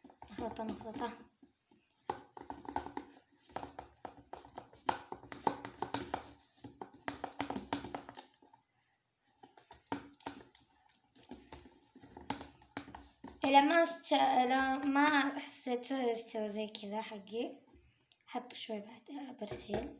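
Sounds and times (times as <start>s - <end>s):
slime squelching: 0.0s - 15.3s.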